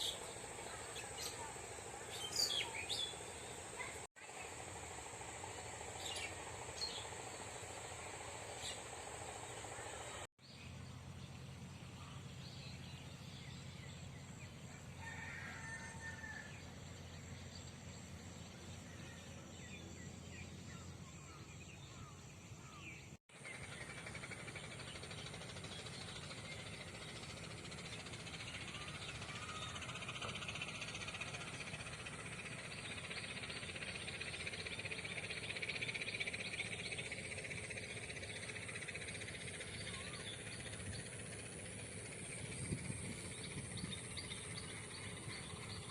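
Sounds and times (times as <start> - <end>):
birds chirping and calling: 0.0 - 4.0.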